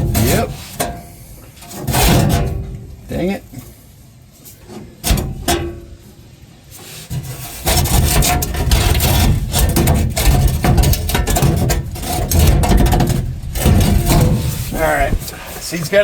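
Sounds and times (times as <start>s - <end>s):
scraping parts by hand: 0.0s - 2.9s, 6.7s - 16.0s.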